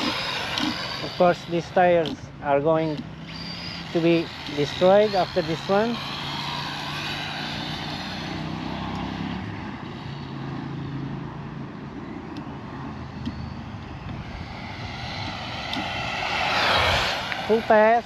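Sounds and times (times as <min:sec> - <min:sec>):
toy car electric motor whining: 0:00.0 - 0:02.2, 0:02.8 - 0:10.3, 0:14.2 - 0:18.0.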